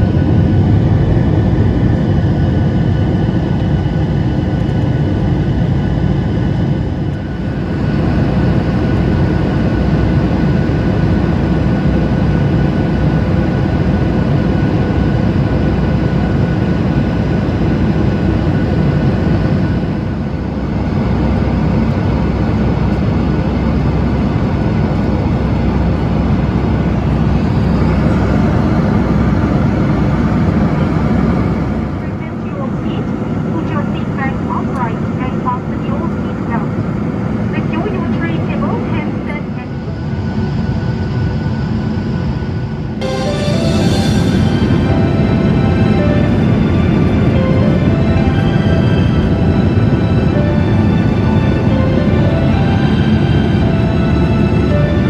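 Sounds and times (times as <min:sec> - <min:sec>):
jet engines rumbling: 0:00.0 - 0:55.0
faint steady whine tones: 0:15.7 - 0:55.0.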